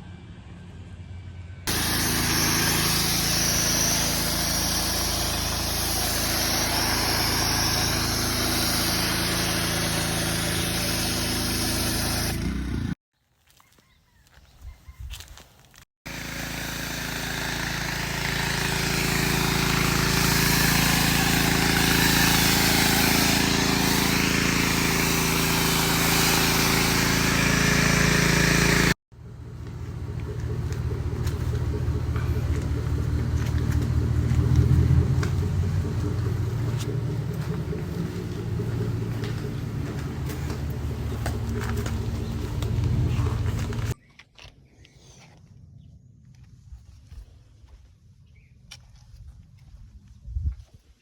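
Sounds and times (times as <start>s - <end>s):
vehicle engine hum: 0.0s - 13.0s, 16.1s - 44.0s
road and wind noise: 29.2s - 44.6s.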